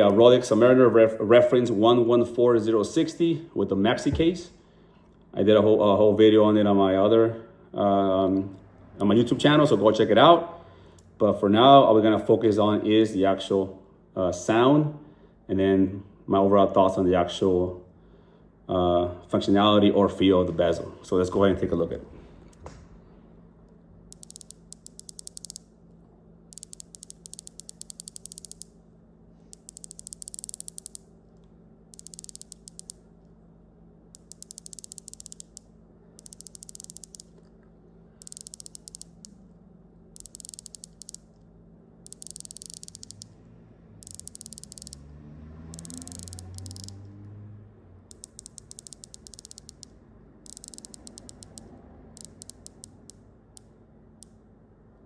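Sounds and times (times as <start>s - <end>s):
watch bezel ratcheting clicks: 24.1s - 25.7s, 26.5s - 28.8s, 29.5s - 31.1s, 31.9s - 33.0s, 34.1s - 37.4s, 38.2s - 39.4s, 40.2s - 41.3s, 42.0s - 43.4s, 44.0s - 47.1s, 48.1s - 54.4s.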